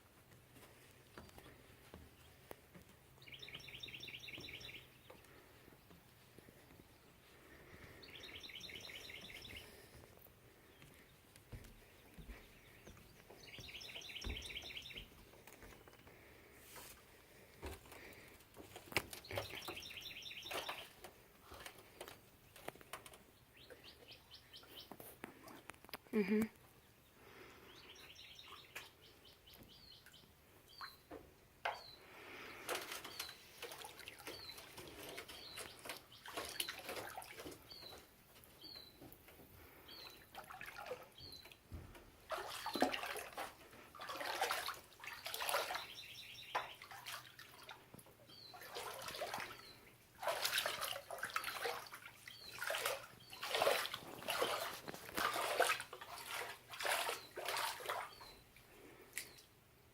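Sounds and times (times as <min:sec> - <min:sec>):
water splashing and sloshing: 0:00.0 - 0:25.8, 0:28.4 - 0:59.6
bird chirping: 0:03.2 - 0:05.4, 0:07.7 - 0:10.0, 0:11.8 - 0:16.0, 0:19.1 - 0:25.0, 0:27.7 - 0:39.2, 0:45.0 - 0:47.2.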